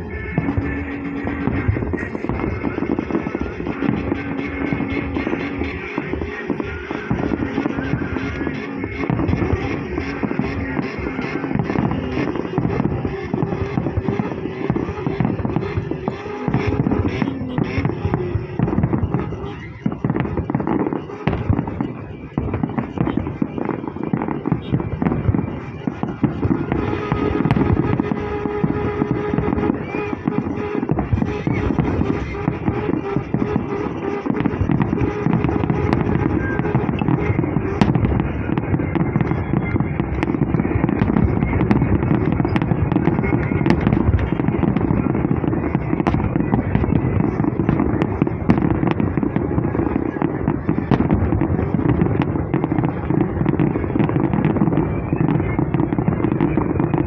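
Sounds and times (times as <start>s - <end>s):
fireworks crackling and popping: 0.0s - 57.0s.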